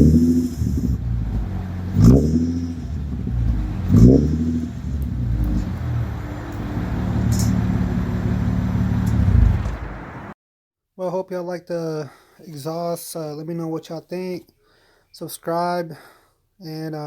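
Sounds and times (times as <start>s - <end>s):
car engine idling deeply: 0.0s - 10.3s
car engine revving: 0.0s - 10.4s.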